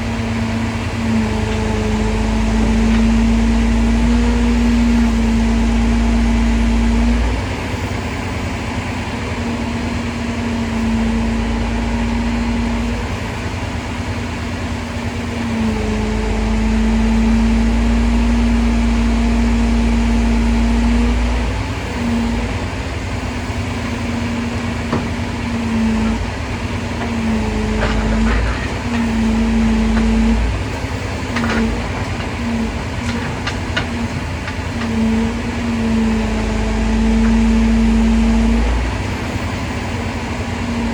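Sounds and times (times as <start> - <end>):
crane engine and hydraulics humming: 0.0 - 40.9
deep rumble cutting in and out: 15.4 - 40.9.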